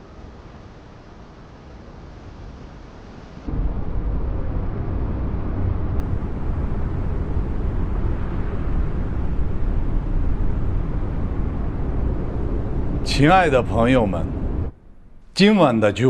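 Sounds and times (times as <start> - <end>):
steady low rumbling: 3.5 - 15.9.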